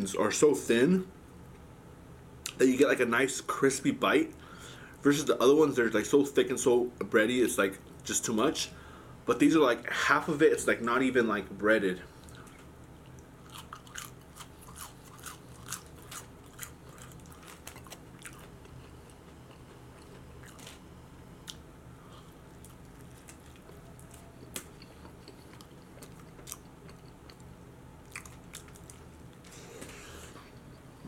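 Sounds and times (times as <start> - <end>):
person chewing crunchy food: 12.2 - 20.8, 21.4 - 30.8.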